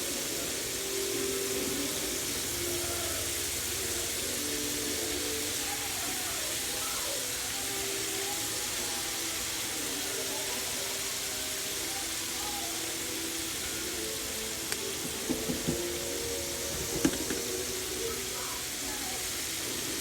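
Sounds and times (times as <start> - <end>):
wings deep-frying in oil: 0.0 - 20.0.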